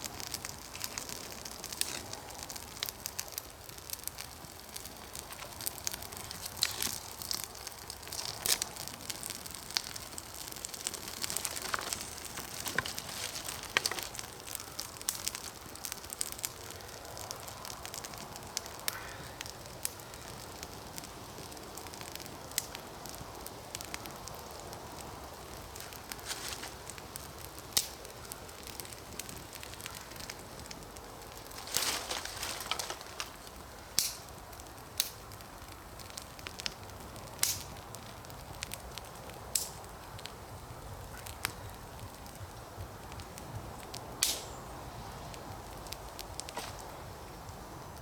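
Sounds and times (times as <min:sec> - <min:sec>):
campfire crackling and popping: 0:00.0 - 0:48.0.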